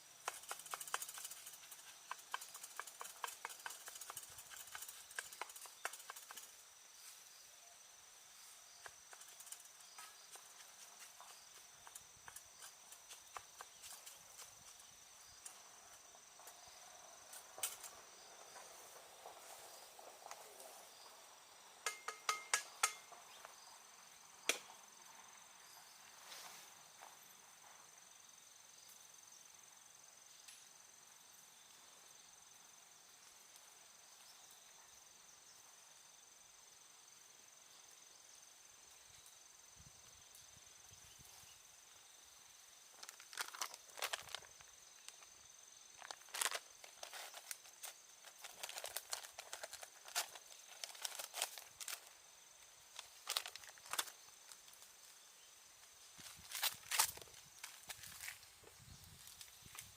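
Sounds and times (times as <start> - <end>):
high-pitched insect chirring: 0.0 - 7.2, 8.8 - 16.2.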